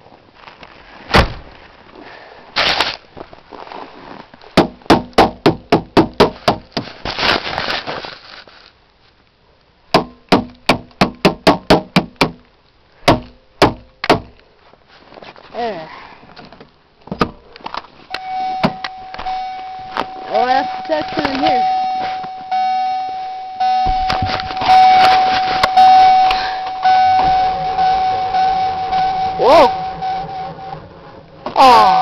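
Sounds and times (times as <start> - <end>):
knocks on a car door: 4.6 - 6.6, 10.0 - 12.4
scraping ice: 24.5 - 25.8.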